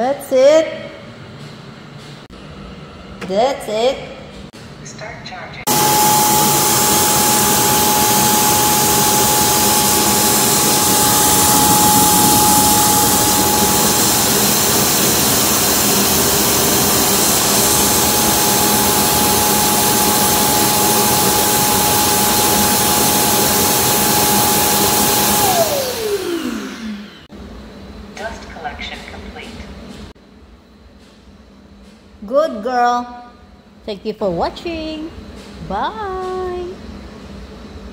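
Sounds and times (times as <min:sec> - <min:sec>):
high whine: 0:05.7 - 0:27.2
vacuum suction motor roaring: 0:05.7 - 0:27.3.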